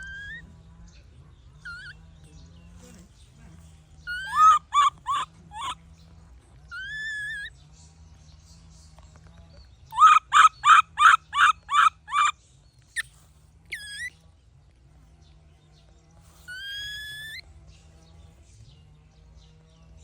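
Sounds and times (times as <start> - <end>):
young monkey crying: 0.0 - 0.4, 1.6 - 2.0, 4.1 - 5.8, 6.7 - 7.5, 9.9 - 12.3, 13.7 - 14.1, 16.5 - 17.4.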